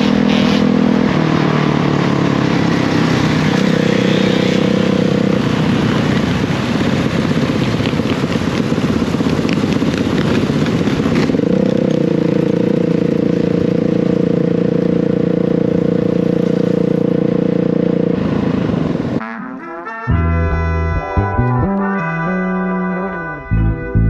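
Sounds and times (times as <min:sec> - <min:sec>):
dirt bike engine running: 0:00.0 - 0:19.2.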